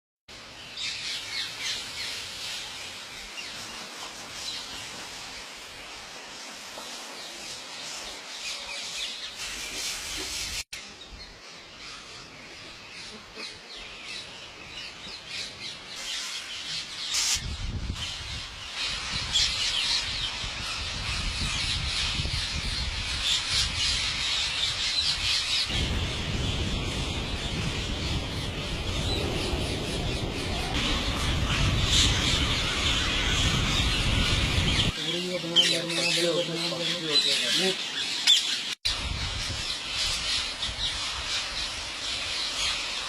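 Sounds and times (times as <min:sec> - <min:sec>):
birds chirping and squawking: 0:08.3 - 0:43.0
low rumble: 0:25.7 - 0:34.9.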